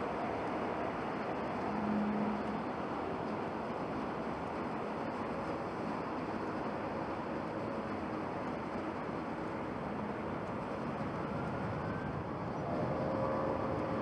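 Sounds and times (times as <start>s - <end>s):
distant jet engines roaring: 0.0s - 14.0s
faint whine: 0.0s - 14.0s.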